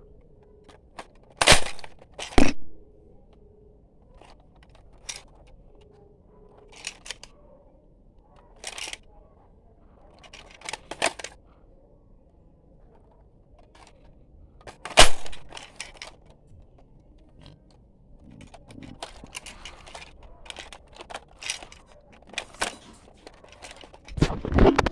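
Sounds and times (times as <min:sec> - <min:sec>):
toy blaster plastic clicks and rattles: 0:00.7 - 0:02.5, 0:04.2 - 0:05.5, 0:06.6 - 0:07.3, 0:08.4 - 0:09.0, 0:10.1 - 0:11.4, 0:13.6 - 0:16.4, 0:18.2 - 0:24.9
sharp plastic snap: 0:14.8 - 0:16.1.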